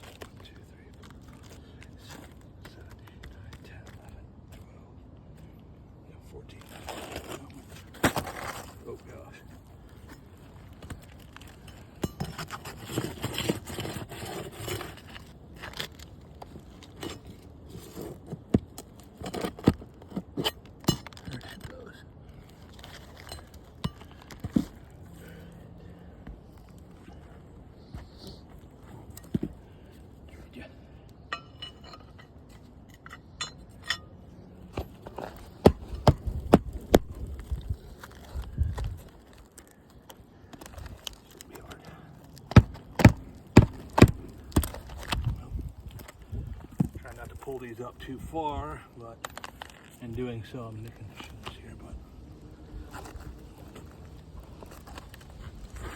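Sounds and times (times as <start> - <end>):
light clicks and scrapes: 6.4 - 30.4, 49.2 - 55.9
shingles scraping: 6.5 - 8.8, 9.7 - 25.4, 31.7 - 47.7, 52.6 - 55.9
hard hammer strikes: 42.6 - 44.8.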